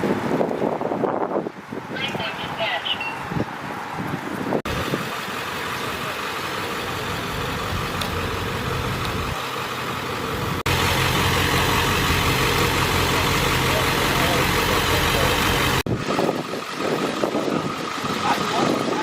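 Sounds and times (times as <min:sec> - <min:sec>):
fire engine idling: 0:04.7 - 0:19.0.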